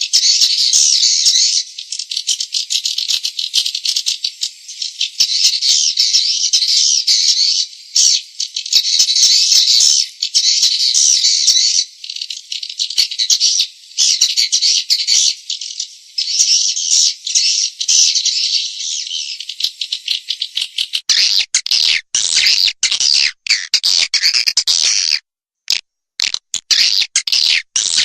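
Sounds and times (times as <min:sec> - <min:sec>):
swiftlets chattering twitters: 0:19.5 - 0:28.0.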